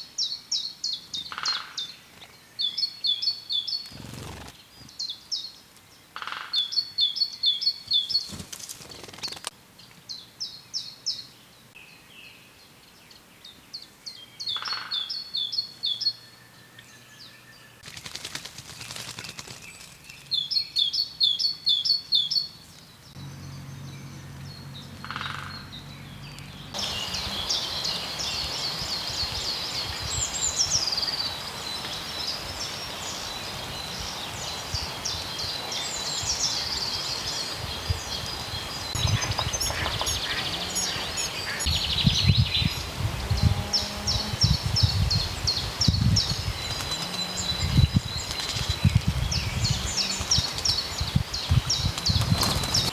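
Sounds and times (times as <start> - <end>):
overlapping birdsong: 0.2 - 11.8, 12.6 - 52.9
songbird trilling: 36.0 - 42.9.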